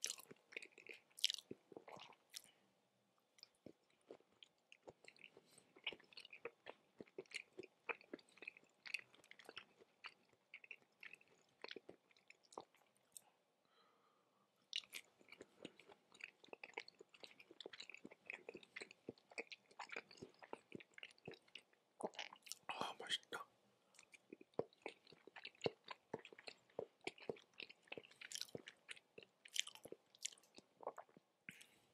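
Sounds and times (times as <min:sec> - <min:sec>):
chewing mouth clicks and smacks: 0:00.0 - 0:02.5, 0:03.4 - 0:13.2, 0:14.7 - 0:22.8, 0:23.9 - 0:31.7.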